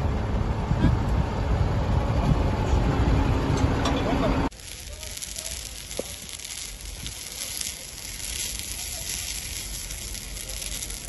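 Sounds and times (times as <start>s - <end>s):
fire hissing and crackling: 4.4s - 11.0s.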